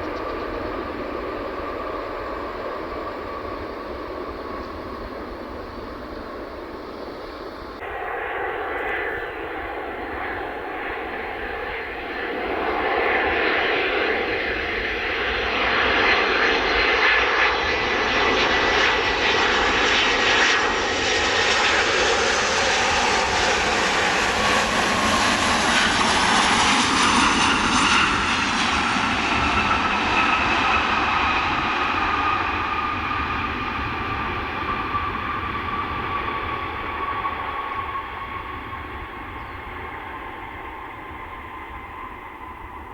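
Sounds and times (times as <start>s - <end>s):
jet airliner passing: 0.0s - 42.9s.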